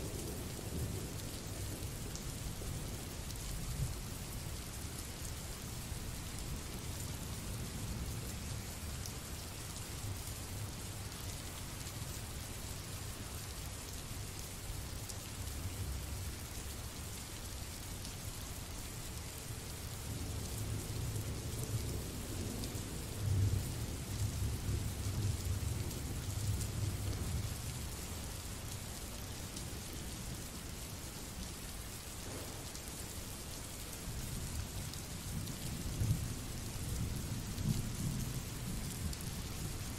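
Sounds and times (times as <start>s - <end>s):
rain hiss: 0.0s - 39.9s
low thunder rumbling: 32.2s - 32.6s.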